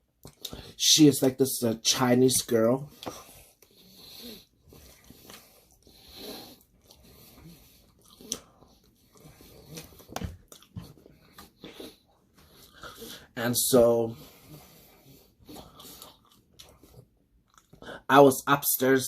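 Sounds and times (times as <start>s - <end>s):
person chewing food: 0.1s - 0.8s, 2.9s - 13.3s, 14.2s - 17.8s
soft breaths: 2.8s - 13.4s, 14.1s - 17.1s.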